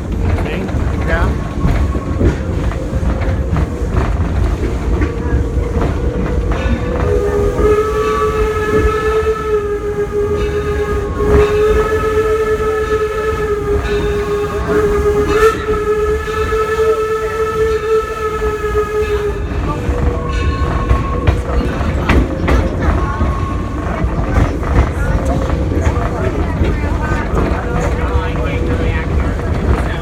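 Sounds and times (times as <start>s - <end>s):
train cars clattering on track: 0.0s - 30.0s
steam locomotive whistle: 5.2s - 28.8s.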